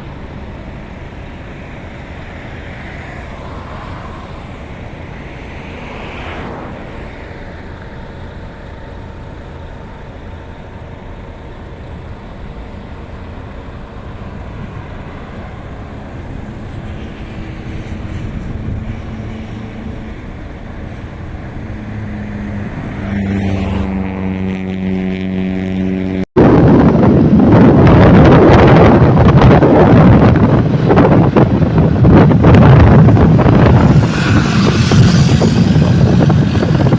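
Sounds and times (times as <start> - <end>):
road and wind noise: 0.0 - 36.9.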